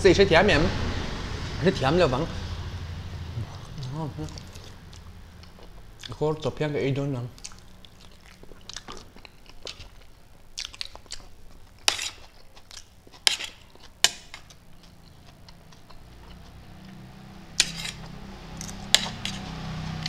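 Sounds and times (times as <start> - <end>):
person chewing with wet mouth smacks: 3.4 - 6.2, 7.3 - 13.9.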